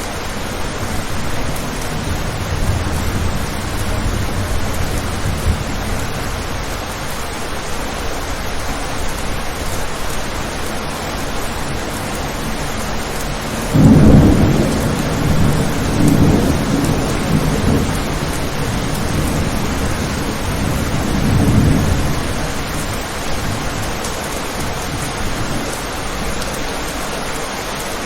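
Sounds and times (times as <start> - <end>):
thunder rumbling: 0.0 - 26.5
steady rain: 0.0 - 28.0.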